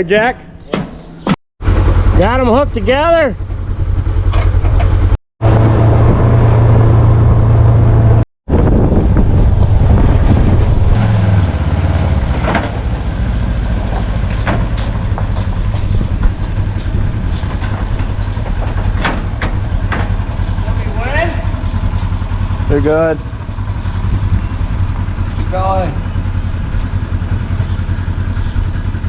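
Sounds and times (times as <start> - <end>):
engine running with deep hum: 1.6 - 29.0
knocks and clatter: 4.2 - 5.2, 10.3 - 20.8.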